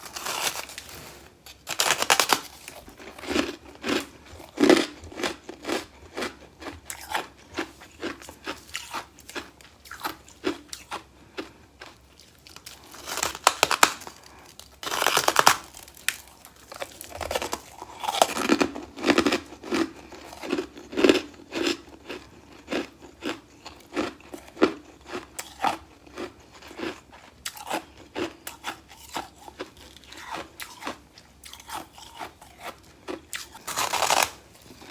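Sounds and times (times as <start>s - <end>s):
crunchy chewing of frost: 0.0s - 34.9s.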